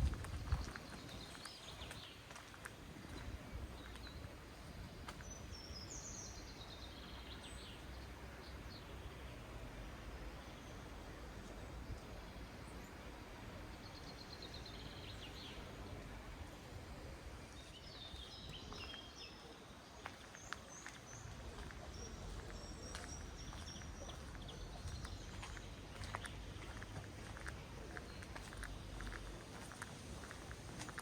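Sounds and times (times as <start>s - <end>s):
outdoor background noise: 0.0s - 31.0s
small birds chirping: 0.1s - 9.6s, 17.4s - 31.0s.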